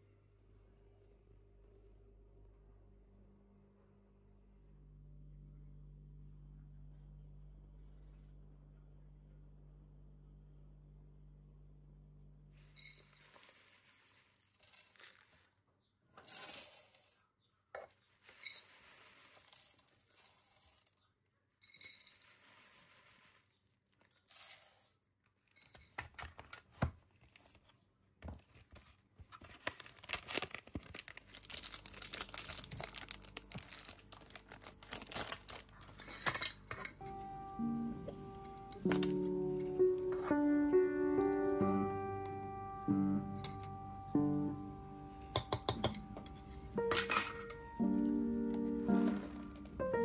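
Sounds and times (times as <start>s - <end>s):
foil wrapper crinkling and tearing: 29.3s - 36.6s.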